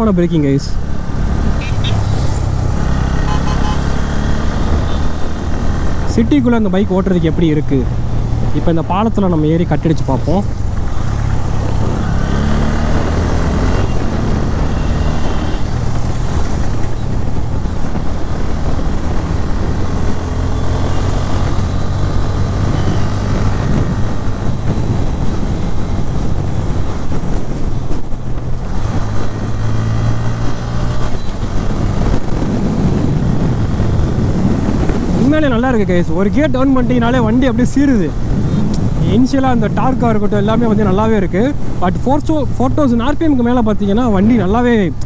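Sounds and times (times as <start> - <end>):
wind rushing over microphone: 0.0 - 45.0
motorcycle engine accelerating: 0.7 - 6.2, 9.9 - 35.3.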